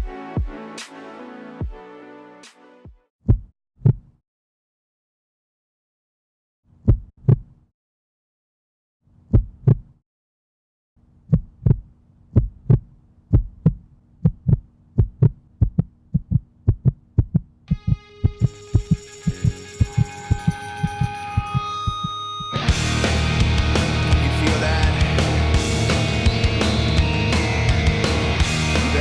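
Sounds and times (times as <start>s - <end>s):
music tones: 0.0s - 2.9s, 17.8s - 29.0s.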